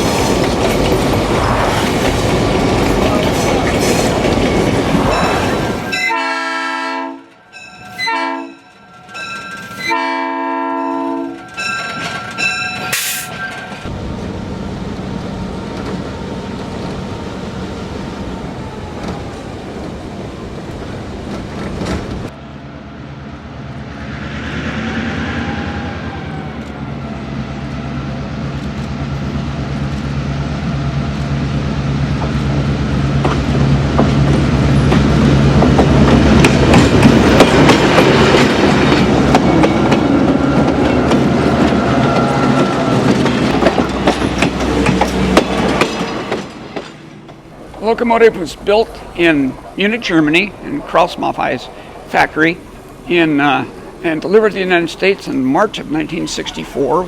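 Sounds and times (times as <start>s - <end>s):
locomotive horn blasts: 5.9s - 7.3s, 8.0s - 8.7s, 9.8s - 11.4s
diesel engine drone: 13.9s - 18.8s.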